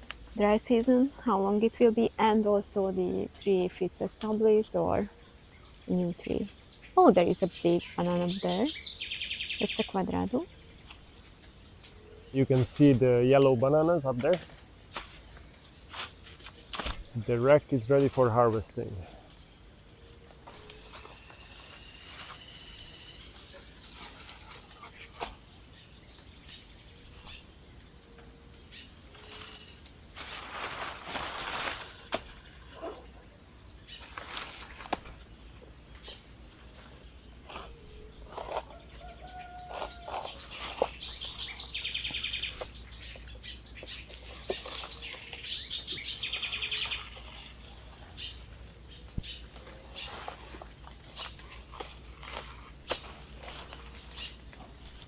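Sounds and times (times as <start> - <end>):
birds chirping and calling: 5.9 - 10.5, 37.5 - 48.4
high-pitched insect drone: 17.2 - 31.0.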